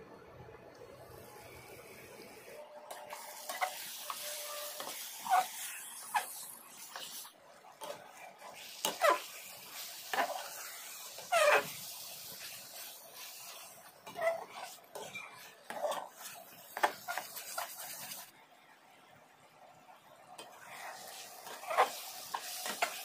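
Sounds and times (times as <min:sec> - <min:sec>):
curry sizzling in a pan: 0:02.9 - 0:18.3, 0:20.4 - 0:23.0.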